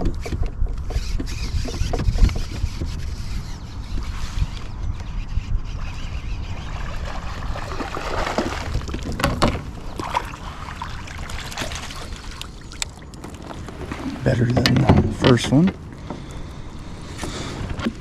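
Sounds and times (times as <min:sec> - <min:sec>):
water sloshing against kayak: 0:06.2 - 0:18.0
sharp splashes: 0:06.6 - 0:14.6.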